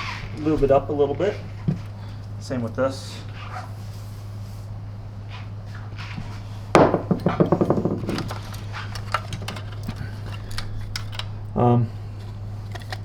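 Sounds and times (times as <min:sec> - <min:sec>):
steady low hum: 0:00.0 - 0:13.0
sharp knock on workbench: 0:06.8 - 0:08.1
rattling clicks of plastic parts: 0:07.2 - 0:11.6, 0:12.2 - 0:13.0.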